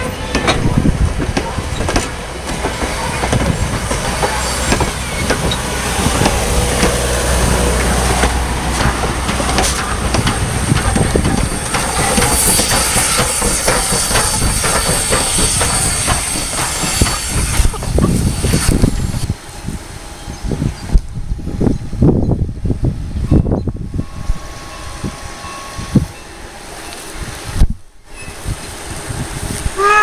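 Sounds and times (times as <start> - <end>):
wind rumble on microphone: 0.0 - 2.0, 4.6 - 12.8, 15.4 - 26.2, 27.1 - 30.0
train wheels clicking over rail joints: 0.0 - 20.0
train hiss: 0.0 - 22.0, 23.8 - 30.0.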